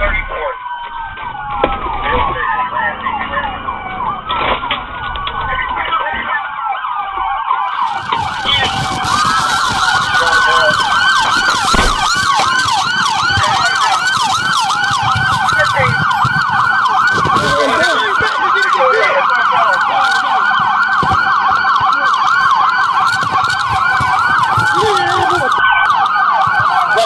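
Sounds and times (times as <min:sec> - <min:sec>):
moving car rumble: 0:00.0 - 0:26.8
police sirens yelping: 0:00.0 - 0:27.0.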